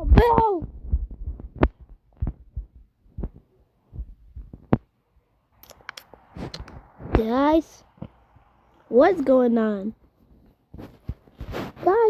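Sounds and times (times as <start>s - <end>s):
sharp clicks: 5.6s - 7.3s.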